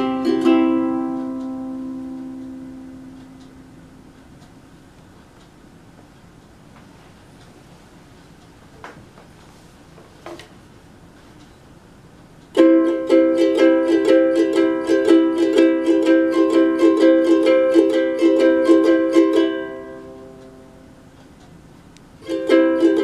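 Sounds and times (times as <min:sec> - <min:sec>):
ukulele strumming: 0:00.0 - 0:04.1, 0:12.5 - 0:21.0, 0:22.2 - 0:23.0
faint taps: 0:08.8 - 0:10.5.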